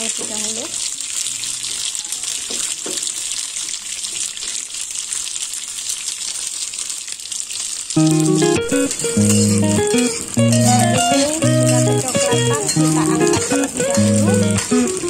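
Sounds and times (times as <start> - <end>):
food sizzling in a wok: 0.0 - 15.0
background music with plucked guitar: 8.0 - 15.0.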